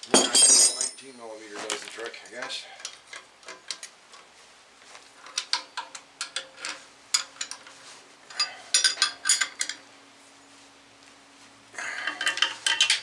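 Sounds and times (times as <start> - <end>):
wrench and bolts clinking: 0.0 - 1.2, 8.3 - 9.8, 12.0 - 13.0.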